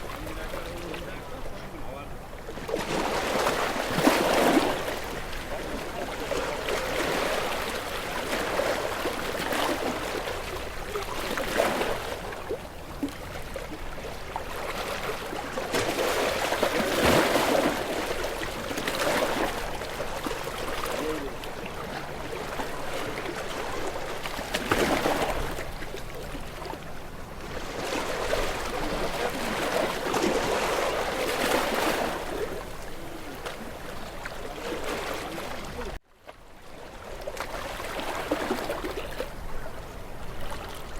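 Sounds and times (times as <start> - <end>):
ocean waves washing ashore: 0.0 - 36.0, 36.6 - 40.9.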